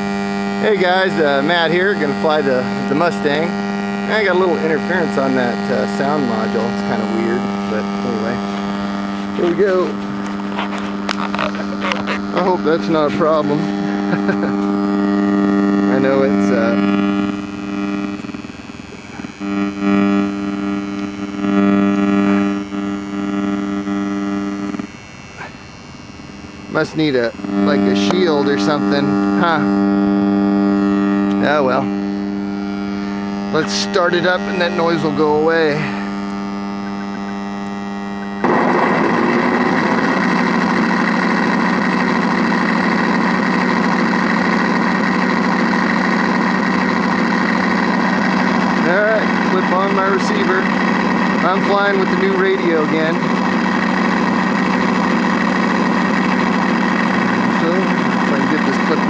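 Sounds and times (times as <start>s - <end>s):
electronic buzzing hum from speaker: 0.0s - 59.0s
simulated piston engine idling: 0.8s - 19.4s, 33.6s - 59.0s.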